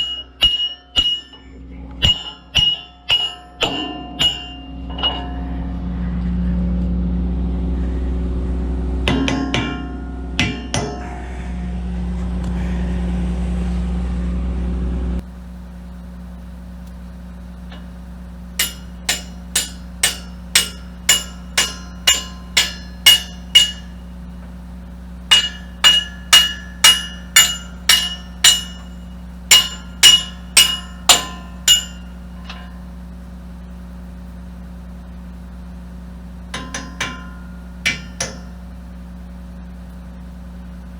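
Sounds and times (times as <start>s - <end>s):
hammer striking steel: 0.0s - 5.4s, 9.1s - 11.2s, 18.6s - 24.1s, 25.3s - 32.8s, 36.5s - 38.6s
metal clanks: 0.0s - 5.6s, 9.1s - 11.2s, 18.6s - 24.6s, 25.3s - 32.9s, 36.6s - 38.6s
engine humming: 1.2s - 40.9s.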